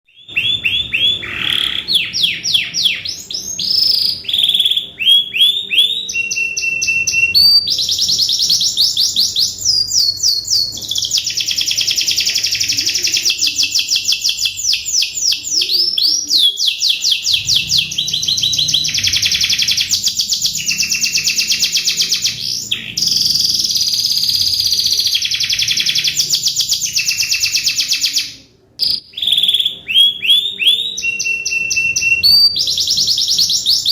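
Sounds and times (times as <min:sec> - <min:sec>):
canary singing trills: 0:00.0 - 0:33.9.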